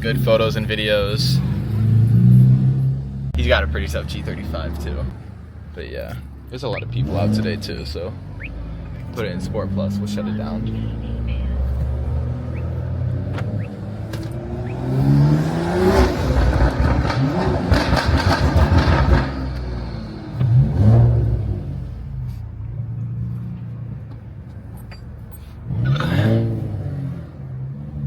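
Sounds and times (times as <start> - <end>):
car engine revving: 0.0 - 5.2, 6.8 - 23.6, 25.6 - 28.0
exhaust pops and crackles: 16.2 - 19.8.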